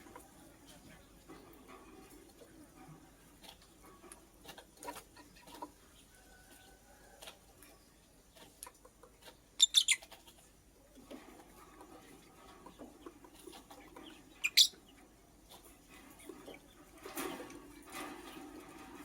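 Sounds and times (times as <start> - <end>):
bird shrill chirps: 9.6 - 10.0.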